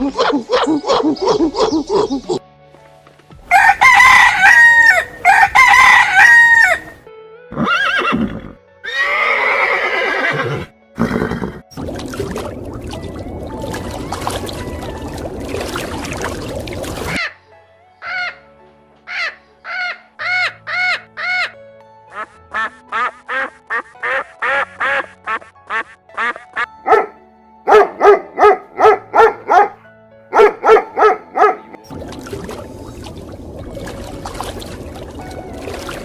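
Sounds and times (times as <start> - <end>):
background music: 0.0 - 36.0
duck quacking: 22.1 - 26.7.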